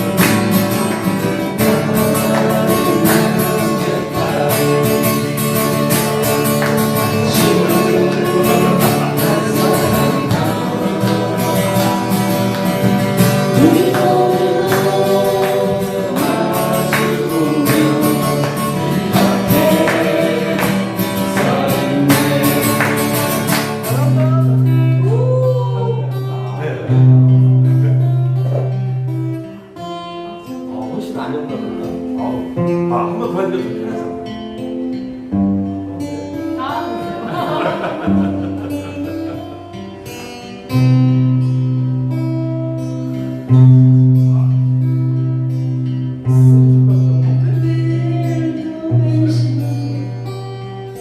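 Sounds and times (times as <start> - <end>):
acoustic guitar strumming: 0.0 - 51.0
person singing: 1.5 - 5.9, 7.1 - 12.3, 13.4 - 26.3, 46.3 - 51.0.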